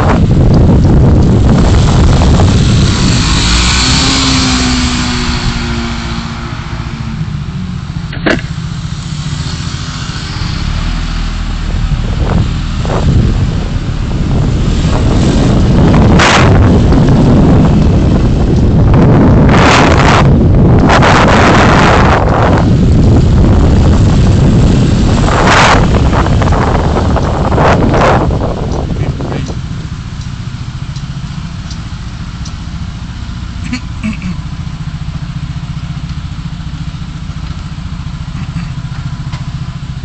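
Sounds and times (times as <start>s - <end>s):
car road and wind noise: 0.0s - 40.0s.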